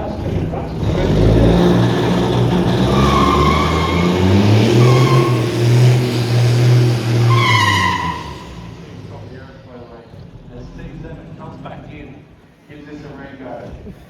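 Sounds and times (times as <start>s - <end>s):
racing engine revving: 0.0s - 12.2s
tyre squeals: 0.8s - 9.2s.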